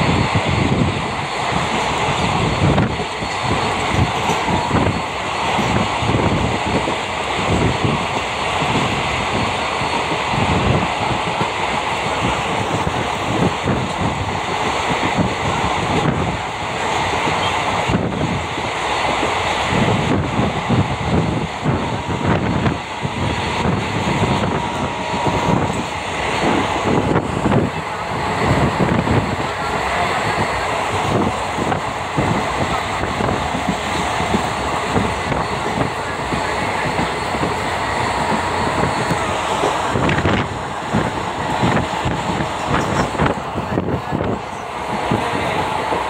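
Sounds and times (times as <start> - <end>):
train wheels rumbling and rattling: 0.0 - 46.0.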